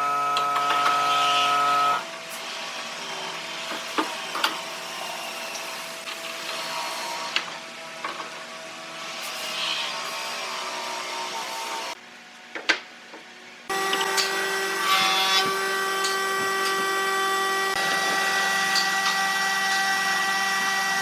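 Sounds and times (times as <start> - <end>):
power tool motor whining: 0.0 - 7.6, 13.7 - 21.0.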